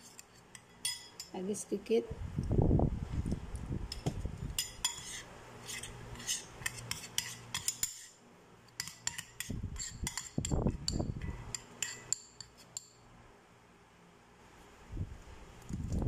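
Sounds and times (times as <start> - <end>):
metal spoon clinking on glass bowl: 0.6 - 1.3, 4.6 - 5.1, 6.6 - 8.1, 8.8 - 13.0.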